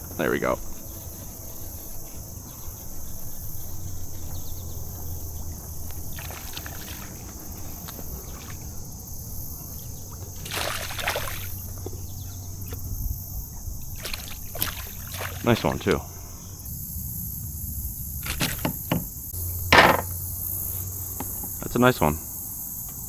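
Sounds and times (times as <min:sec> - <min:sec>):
water sloshing and splashing: 0:00.0 - 0:16.6, 0:18.2 - 0:19.1
crickets trilling: 0:00.0 - 0:23.0.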